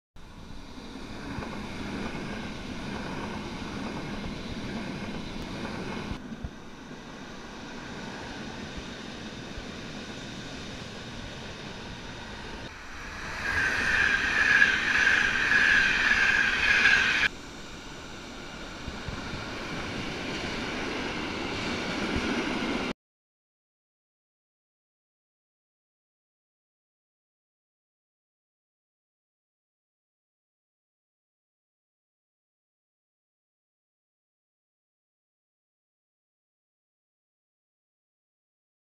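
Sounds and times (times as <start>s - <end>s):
freight train passing: 0.2s - 22.9s
high-speed train rushing past: 0.2s - 22.9s
steady high tone: 12.6s - 17.3s.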